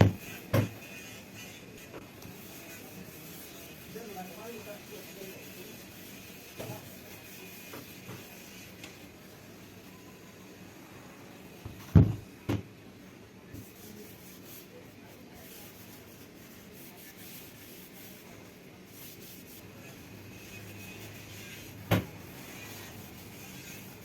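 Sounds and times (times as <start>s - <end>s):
loud sharp knocks: 11.9s - 12.6s, 21.9s - 22.1s.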